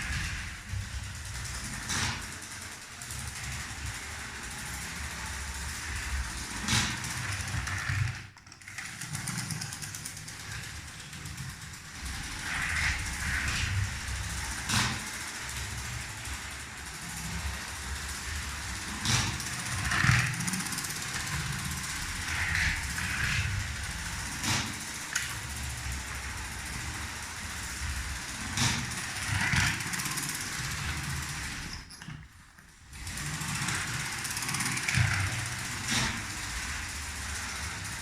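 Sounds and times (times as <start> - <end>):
toy train motor hum: 0.0 - 38.0
wheels rattling on plastic track: 0.0 - 38.0
sharp clicks: 19.0 - 25.8.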